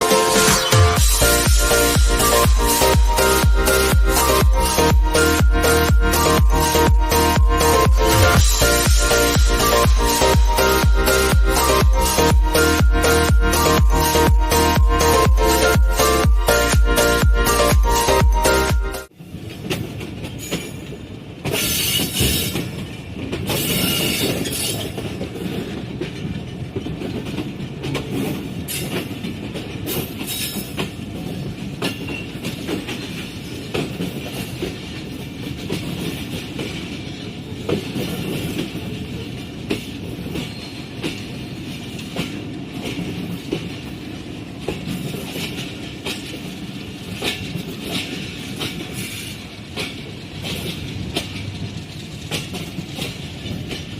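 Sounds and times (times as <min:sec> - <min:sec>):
train coaches rumbling: 0:00.0 - 0:53.9
wheels clacking over rail joints: 0:19.2 - 0:53.9.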